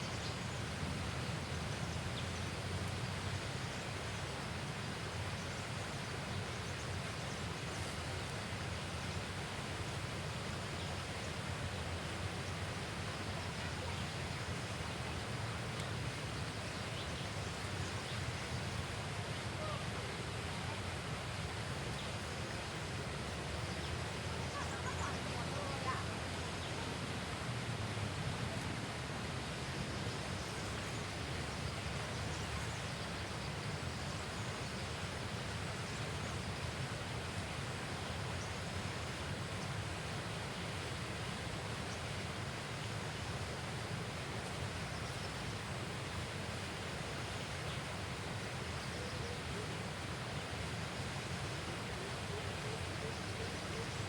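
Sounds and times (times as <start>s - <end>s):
outdoor background rush: 0.0s - 54.0s.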